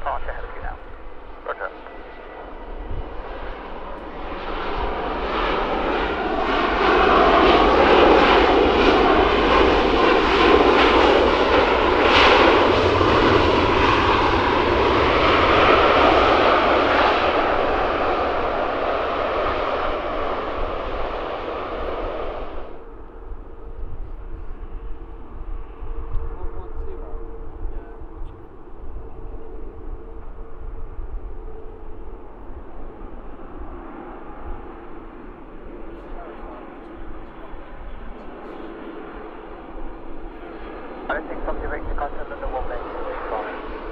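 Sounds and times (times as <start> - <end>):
airliner jet engines passing: 0.0 - 43.9.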